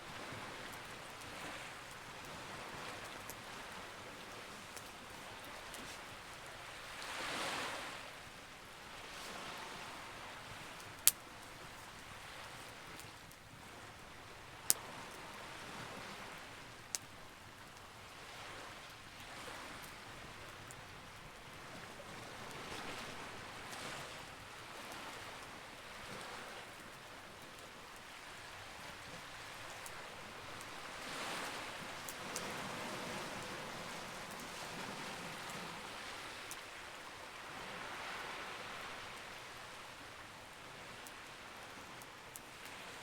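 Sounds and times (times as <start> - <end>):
waves washing in and out: 0.0 - 43.0
campfire crackling and popping: 0.1 - 7.0, 10.4 - 15.2, 16.2 - 18.0, 26.9 - 34.6.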